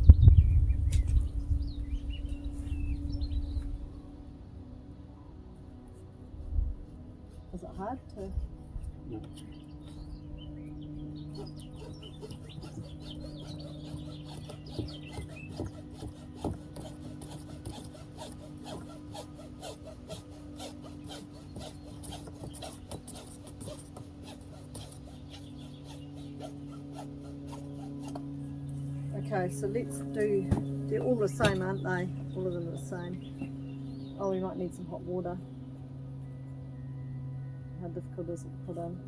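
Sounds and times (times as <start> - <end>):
hand saw rasping through pipe: 11.2 - 28.5.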